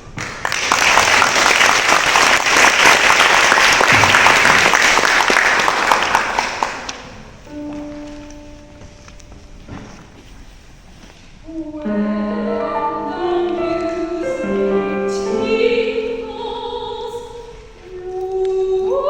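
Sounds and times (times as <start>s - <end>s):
audience applauding: 0.0s - 7.4s
held instrument note: 7.5s - 10.2s.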